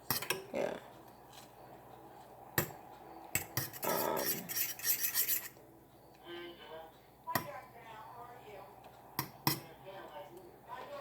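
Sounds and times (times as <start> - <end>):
utensil scraping and clattering: 3.4 - 5.6.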